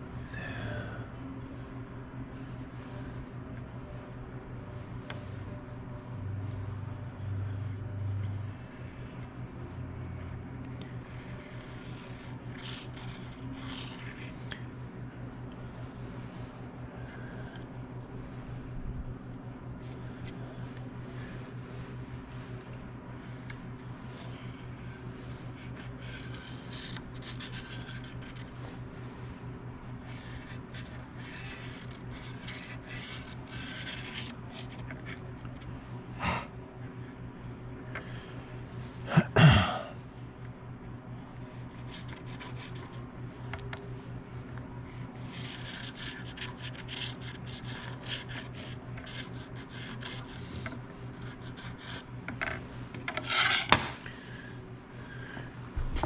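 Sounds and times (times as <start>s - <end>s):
steady machine hum: 0.0s - 56.0s
hand file scraping: 30.0s - 35.2s, 53.0s - 54.0s.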